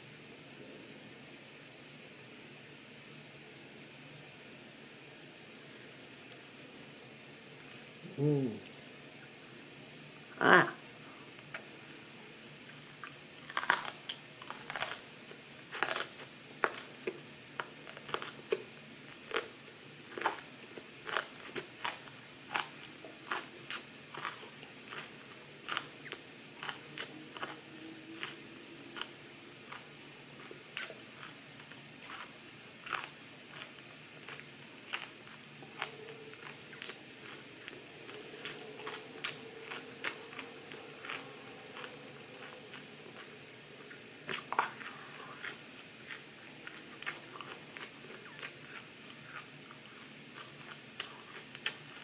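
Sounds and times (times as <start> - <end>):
crisp crunching of broccoli: 11.3 - 52.0.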